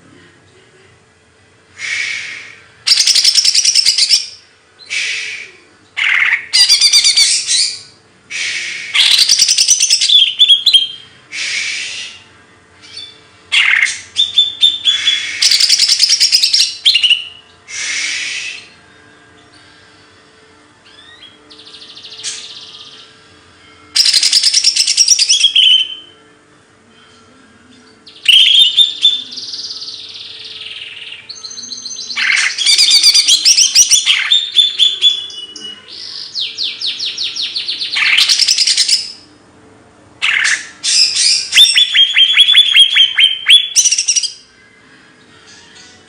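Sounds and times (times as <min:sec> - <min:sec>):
songbird trills and chirps: 0:02.9 - 0:04.4, 0:23.9 - 0:26.1, 0:40.2 - 0:44.5.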